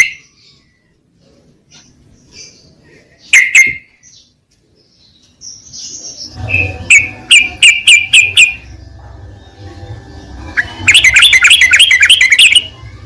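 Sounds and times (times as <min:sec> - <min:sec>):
low steady hum: 0:04.6 - 0:13.0
bird chirping sharply: 0:10.5 - 0:13.0.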